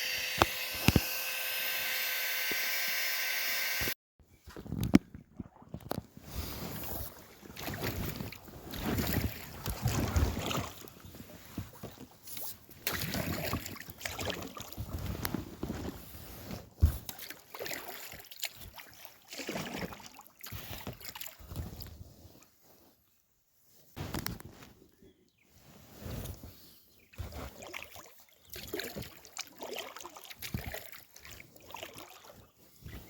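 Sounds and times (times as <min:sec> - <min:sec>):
paddle strokes splashing: 0:06.3 - 0:12.0, 0:27.5 - 0:33.0.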